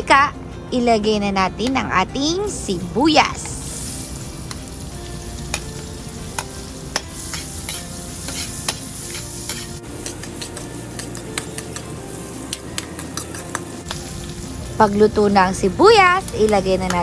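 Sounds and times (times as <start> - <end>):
onion sizzling in pan: 2.2 - 17.0
utensil clicking against pan: 6.4 - 11.9, 12.5 - 14.0.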